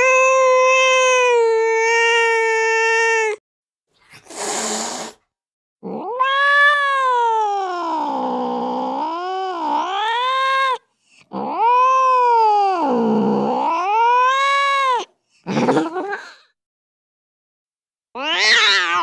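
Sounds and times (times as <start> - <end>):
cat yowling: 0.0 - 3.4, 5.8 - 15.1, 18.2 - 19.0.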